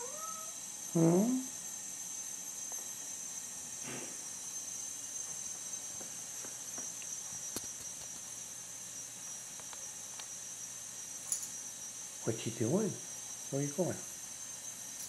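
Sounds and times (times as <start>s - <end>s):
recording hiss: 11.2s - 15.0s.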